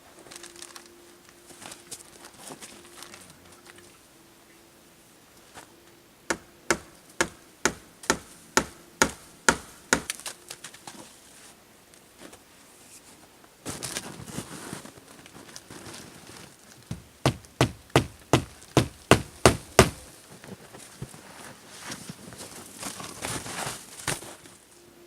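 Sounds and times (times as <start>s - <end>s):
rustling: 0.0s - 4.0s, 10.1s - 24.8s.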